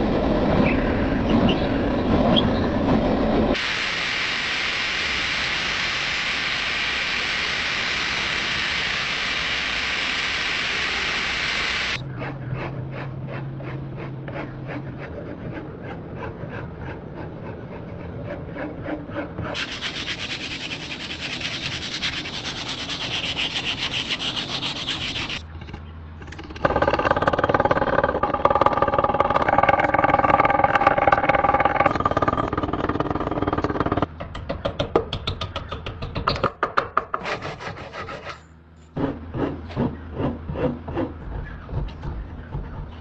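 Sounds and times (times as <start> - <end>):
steady whine: 0.0 - 12.4
rubbing and scraping: 12.2 - 34.1, 37.1 - 42.7
quick repeated strokes: 19.5 - 25.4.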